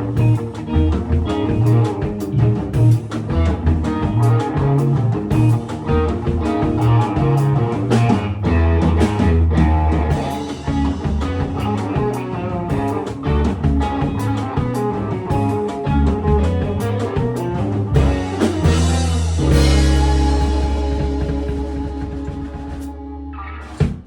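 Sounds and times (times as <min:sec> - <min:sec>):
baritone electric guitar low notes: 0:00.0 - 0:24.0
rock band: 0:00.0 - 0:24.0
drum hits: 0:16.4 - 0:23.0.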